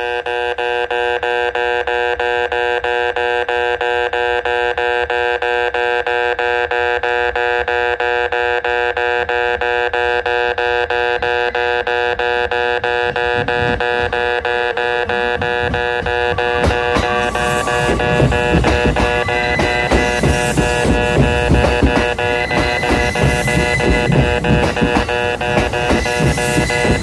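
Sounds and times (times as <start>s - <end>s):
low rumble: 12.8s - 22.4s.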